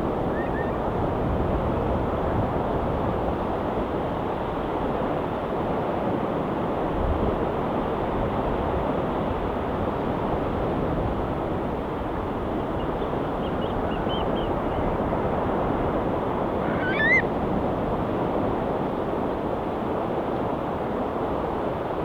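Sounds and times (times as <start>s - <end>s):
faint high bird calls: 0.2s - 0.9s, 12.6s - 15.4s, 16.6s - 17.3s
gull call rising in pitch: 0.2s - 0.9s, 16.6s - 17.3s
ocean waves: 11.5s - 19.3s.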